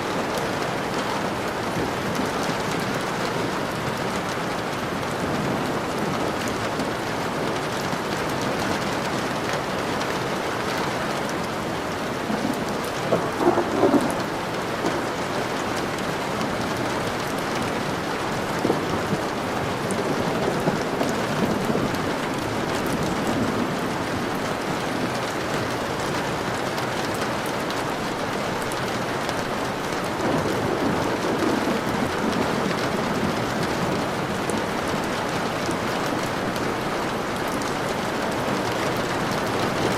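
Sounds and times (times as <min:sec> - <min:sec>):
steady rain falling: 0:00.0 - 0:39.9
thunder rolling: 0:12.3 - 0:15.4.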